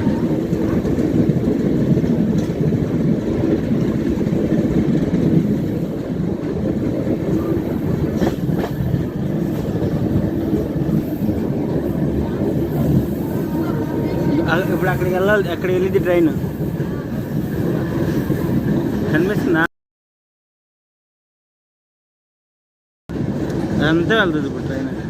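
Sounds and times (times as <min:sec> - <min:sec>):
train wheels rumbling: 0:00.0 - 0:19.7.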